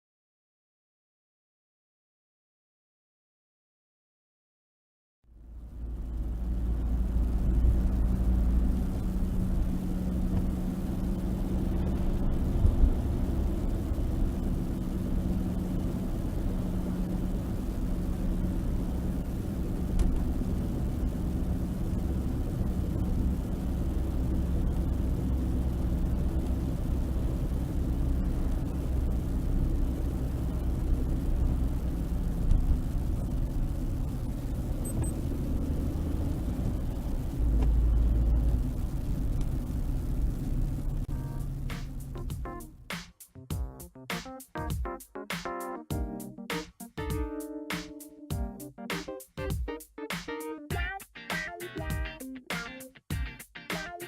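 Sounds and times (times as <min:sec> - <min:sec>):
car driving low rumble: 0:05.3 - 0:42.9
low drivetrain hum: 0:05.3 - 0:43.0.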